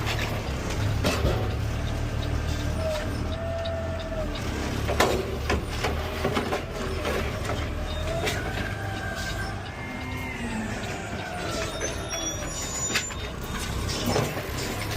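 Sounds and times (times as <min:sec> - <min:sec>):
garbage truck humming: 0:00.0 - 0:14.9
hydraulic arm clanking: 0:00.0 - 0:14.9
hydraulic arm whining: 0:05.4 - 0:14.9.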